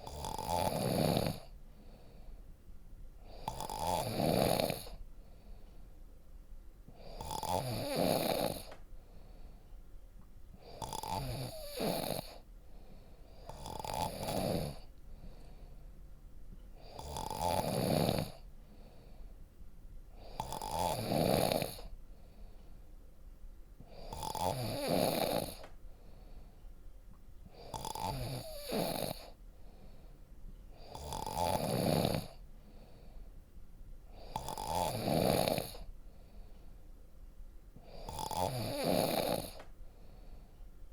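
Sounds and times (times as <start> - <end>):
person snoring: 0.0 - 2.2, 3.2 - 5.0, 7.0 - 8.8, 10.6 - 12.4, 13.3 - 15.6, 16.8 - 19.1, 20.2 - 21.9, 23.9 - 25.7, 27.5 - 29.4, 30.8 - 33.1, 34.1 - 35.9, 37.8 - 40.2.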